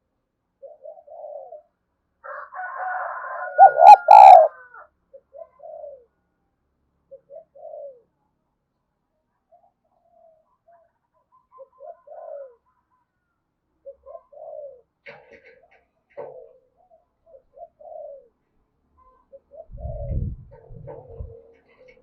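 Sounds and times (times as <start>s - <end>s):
doves cooing: 3.5s - 4.6s.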